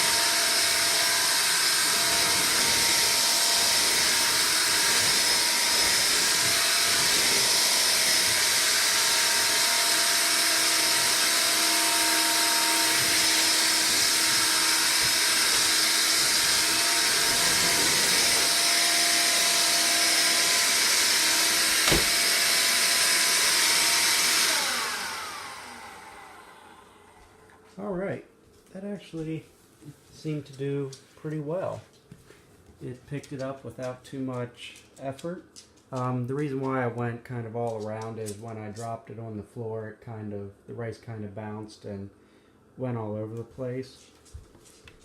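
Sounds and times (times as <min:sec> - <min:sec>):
vacuum motor spinning down: 0:00.0 - 0:27.5
stick vacuum running: 0:00.0 - 0:27.6.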